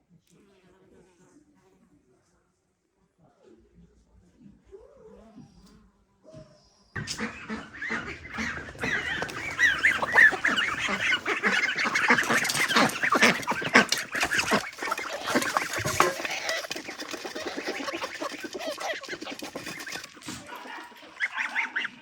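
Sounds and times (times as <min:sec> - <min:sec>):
poultry flock calling: 0:07.0 - 0:22.0.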